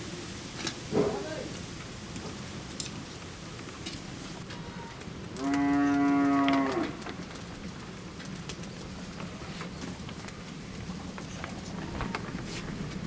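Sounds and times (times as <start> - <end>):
cow mooing: 4.6 - 7.0.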